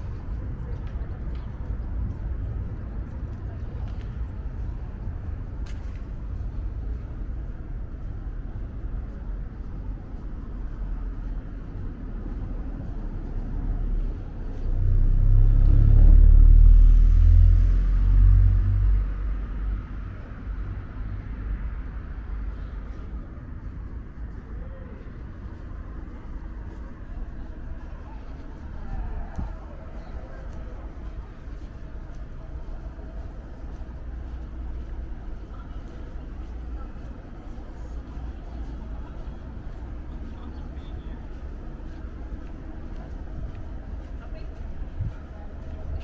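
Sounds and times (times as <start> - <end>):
road vehicle passing: 12.2 - 23.9.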